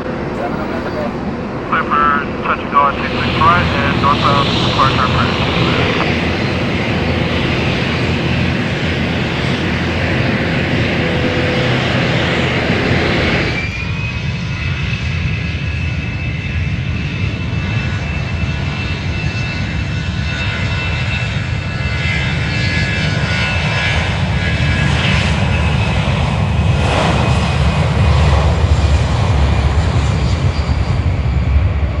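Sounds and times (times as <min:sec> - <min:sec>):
airplane engine rumble: 0:00.3 - 0:13.9
high whine: 0:00.4 - 0:01.4, 0:02.3 - 0:13.8.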